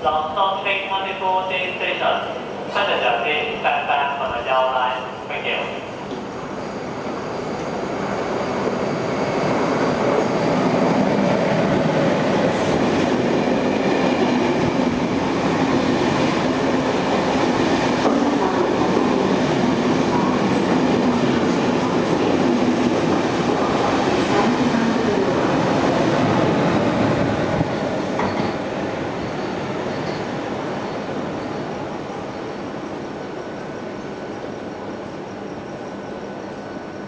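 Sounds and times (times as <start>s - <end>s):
train wheels on rails: 6.0s - 32.5s.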